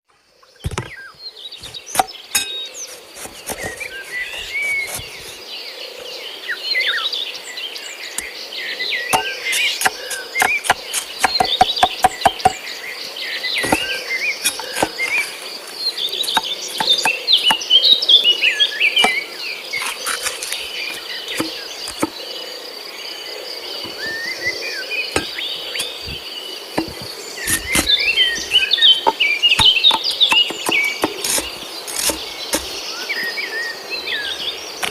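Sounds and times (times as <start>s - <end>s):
birds chirping: 0.1s - 34.9s
sharp clicks and knocks: 26.8s - 32.8s.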